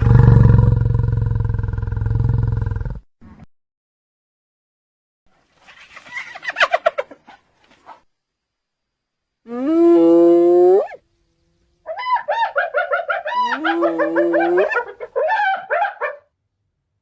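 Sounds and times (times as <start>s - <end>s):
animal call rising in pitch: 9.5s - 11.0s, 11.8s - 16.2s
animal yelping: 9.7s - 11.0s, 11.8s - 16.2s.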